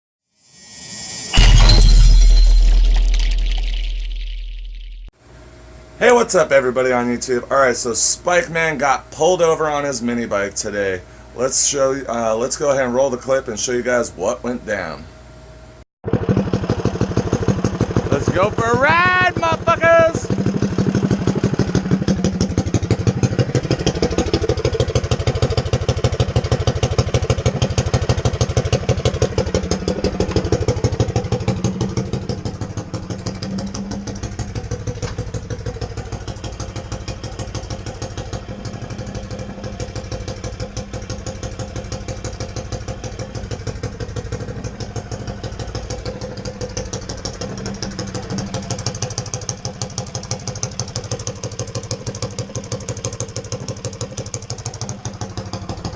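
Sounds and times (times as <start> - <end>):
mini bike engine revving: 16.1 - 55.9.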